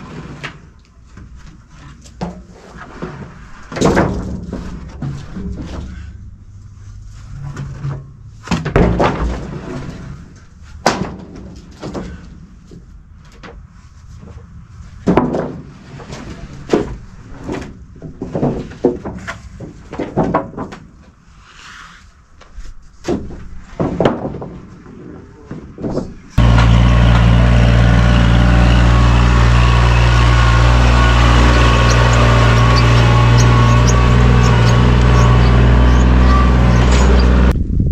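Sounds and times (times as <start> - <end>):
wooden boards knocking and clattering: 0.4 - 6.1, 7.5 - 10.1, 10.8 - 13.6, 14.2 - 21.2, 23.0 - 27.3
tractor engine running: 26.4 - 37.6.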